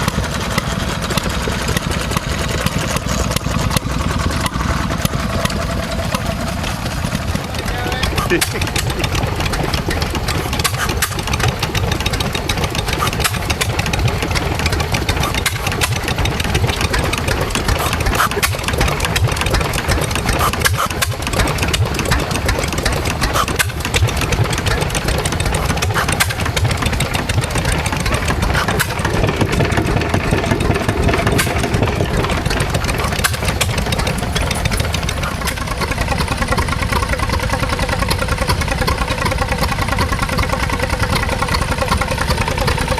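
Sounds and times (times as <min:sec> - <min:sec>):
small engine knocking steadily: 0:00.0 - 0:42.9.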